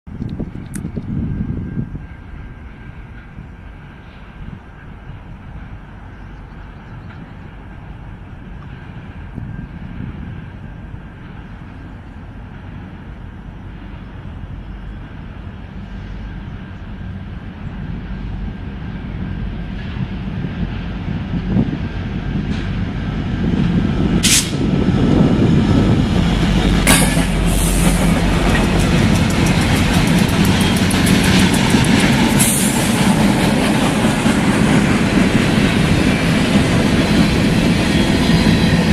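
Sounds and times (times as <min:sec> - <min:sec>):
diesel locomotive engines rumbling: 0:00.1 - 0:38.9
wheels clicking over rail joints: 0:26.9 - 0:32.4.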